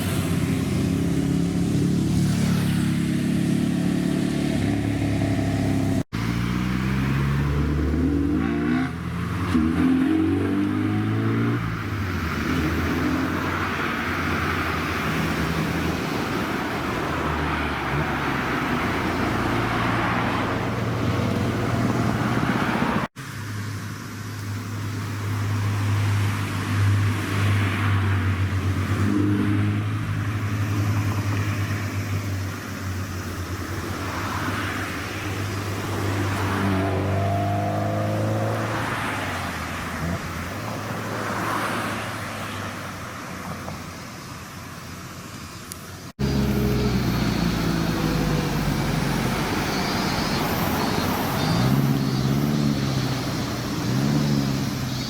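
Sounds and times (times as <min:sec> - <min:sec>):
engine revving: 0:00.0 - 0:23.2, 0:35.5 - 0:42.2, 0:46.1 - 0:55.0
car engines running: 0:00.0 - 0:55.0.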